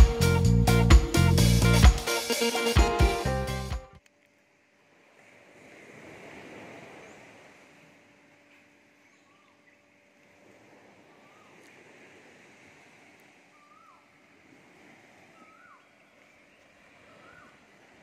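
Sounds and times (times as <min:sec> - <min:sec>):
bird whistling: 0:13.5 - 0:14.1.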